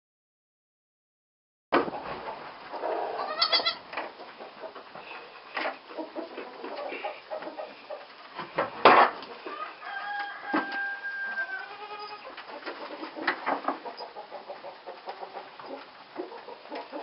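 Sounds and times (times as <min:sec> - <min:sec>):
loud sharp knock: 0:01.7 - 0:02.0
rustling in barn: 0:02.0 - 0:17.0
farm animal call: 0:02.7 - 0:03.9, 0:09.4 - 0:12.7.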